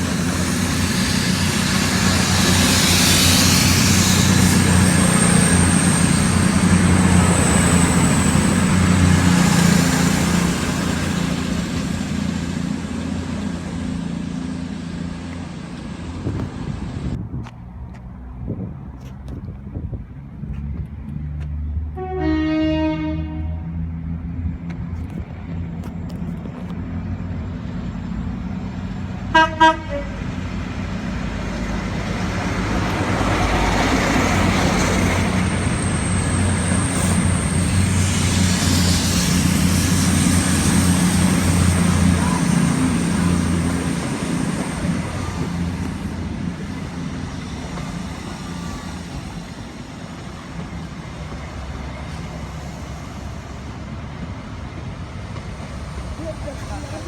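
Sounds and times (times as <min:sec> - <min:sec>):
train rumble: 0:00.0 - 0:57.0
train horn blasts: 0:21.9 - 0:23.8, 0:29.3 - 0:30.2.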